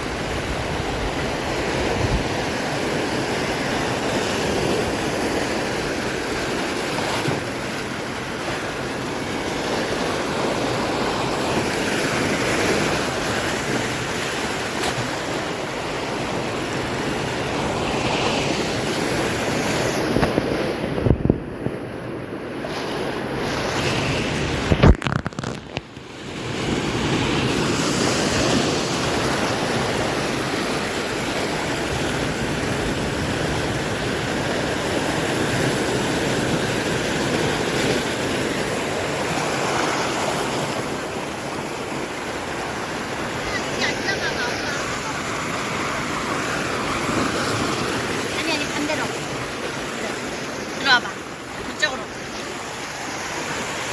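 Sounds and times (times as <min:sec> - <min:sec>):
wind buffeting microphone: 0:00.0 - 0:06.3, 0:18.5 - 0:25.9
ocean surf breaking: 0:00.0 - 0:53.9.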